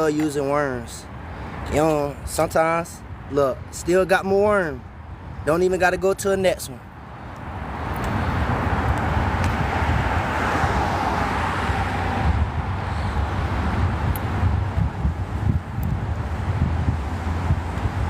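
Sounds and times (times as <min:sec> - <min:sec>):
road traffic: 0:00.0 - 0:18.0
vehicle passing: 0:06.9 - 0:18.0
wind rumbling on microphone: 0:07.0 - 0:18.0.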